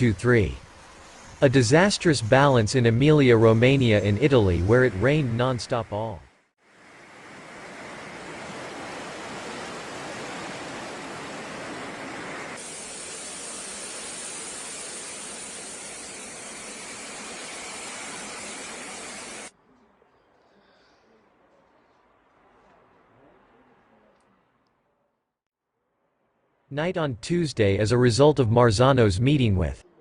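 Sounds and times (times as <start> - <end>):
floodwater rushing: 6.7 - 19.5.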